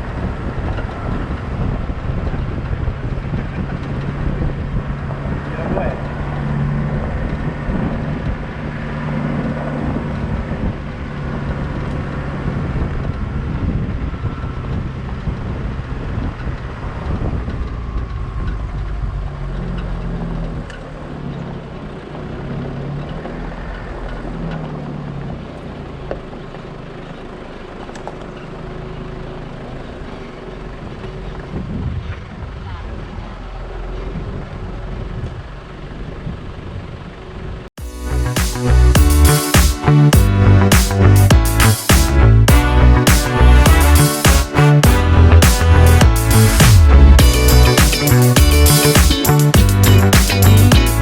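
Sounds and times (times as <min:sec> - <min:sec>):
wind noise: 0:00.0 - 0:18.6, 0:31.5 - 0:33.2
road rumble: 0:00.0 - 0:51.0
vehicle engine running: 0:00.0 - 0:51.0.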